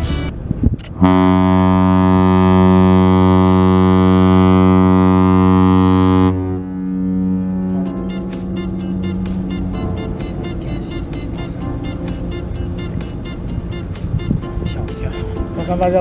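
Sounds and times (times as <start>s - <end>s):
deep ship horn blast: 1.0s - 11.7s.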